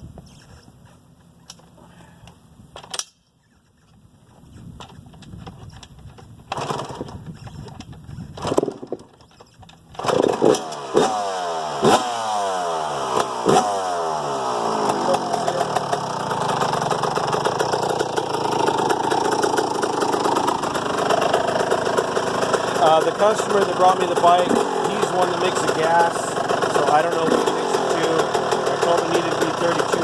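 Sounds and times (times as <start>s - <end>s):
dirt bike engine kick starting: 3.8s - 30.0s
dirt bike engine revving: 10.0s - 30.0s.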